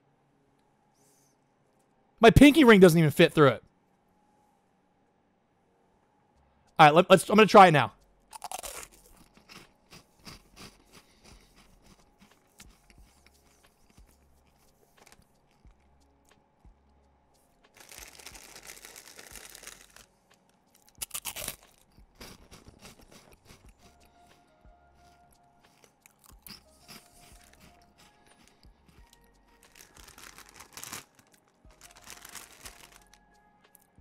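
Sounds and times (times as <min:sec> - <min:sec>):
crunching and chewing crisps: 0:08.3 - 0:15.9, 0:17.7 - 0:24.4, 0:25.0 - 0:33.9
packet rustling: 0:17.8 - 0:20.1, 0:29.6 - 0:33.3.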